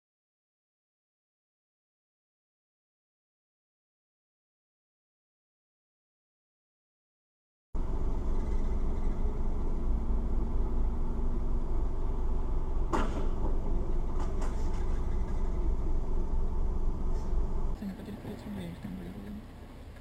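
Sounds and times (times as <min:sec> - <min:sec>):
engine and road rumble: 0:07.8 - 0:20.0
sharp knock: 0:12.9 - 0:13.6.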